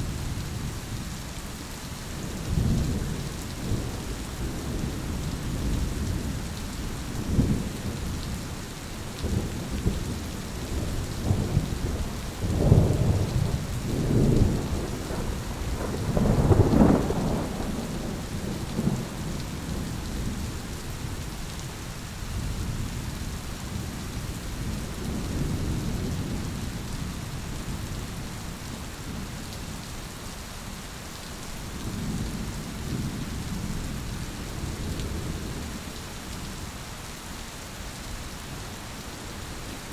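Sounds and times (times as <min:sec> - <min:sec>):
steady rain: 0:00.0 - 0:39.9
rolling thunder: 0:09.2 - 0:20.5.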